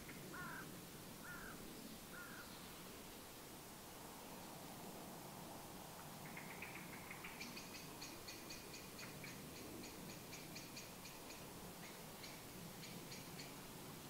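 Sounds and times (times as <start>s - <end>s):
bird high ticking calls: 6.2s - 13.7s.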